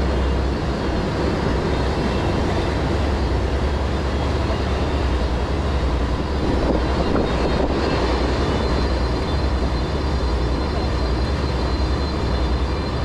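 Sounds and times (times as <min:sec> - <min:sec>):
motorboat engine drone: 0:00.0 - 0:13.0
rushing wind: 0:00.0 - 0:13.0
water noise: 0:00.0 - 0:13.0.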